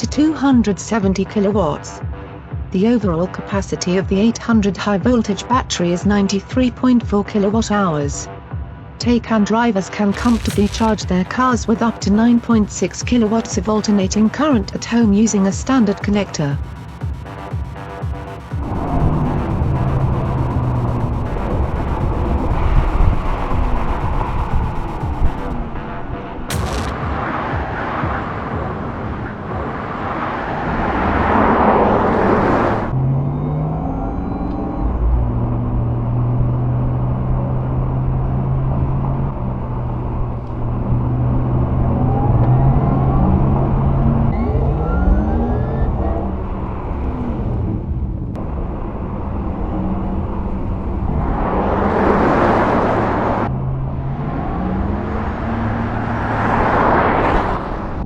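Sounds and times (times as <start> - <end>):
road and wind noise: 0.0 - 58.0
electric car humming: 12.2 - 25.6.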